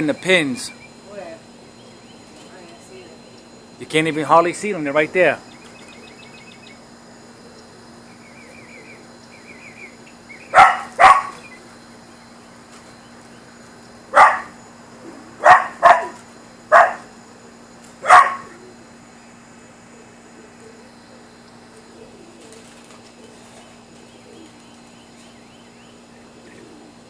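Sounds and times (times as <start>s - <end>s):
dog barking: 10.5s - 11.4s, 14.2s - 14.6s, 15.4s - 17.1s, 18.0s - 18.6s.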